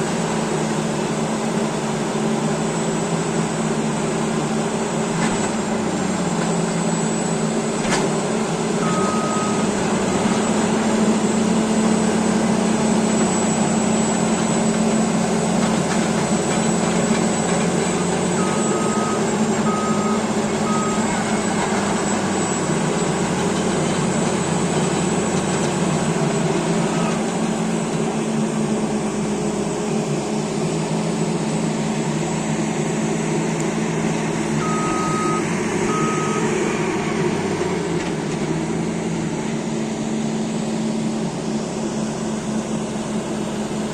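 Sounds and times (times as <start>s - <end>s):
bulldozer diesel engine running: 0.0s - 43.9s
reverse alarm beeping: 8.8s - 9.8s, 18.3s - 22.7s, 34.6s - 36.6s.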